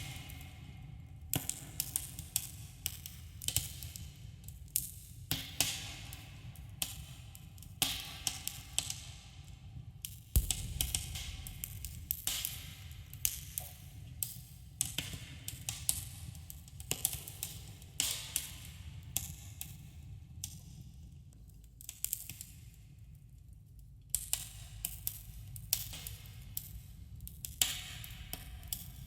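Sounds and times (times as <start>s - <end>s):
low steady rumble: 10.4s - 13.2s
fire pops and snaps: 10.4s - 13.7s.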